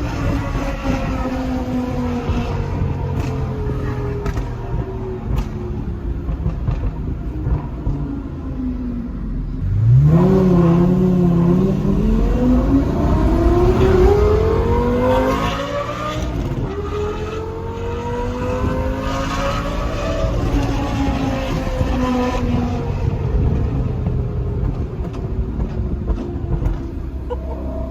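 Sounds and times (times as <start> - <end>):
sports car engine revving: 9.6 - 26.8.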